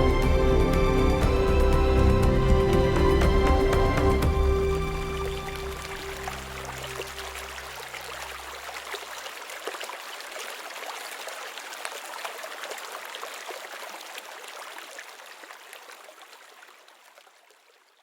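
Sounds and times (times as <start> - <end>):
background music: 0.0 - 7.8
stream babbling: 0.0 - 17.9.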